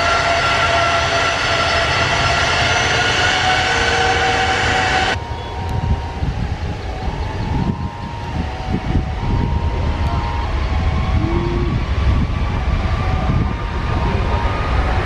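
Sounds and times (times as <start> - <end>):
jet engines whining: 0.0 - 15.0
low engine rumble: 0.0 - 15.0.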